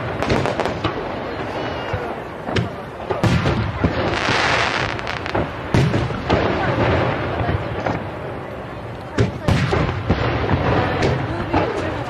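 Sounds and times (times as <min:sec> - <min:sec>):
firework shells booming: 0:00.0 - 0:08.2, 0:09.1 - 0:12.0
firework hiss: 0:03.2 - 0:07.2.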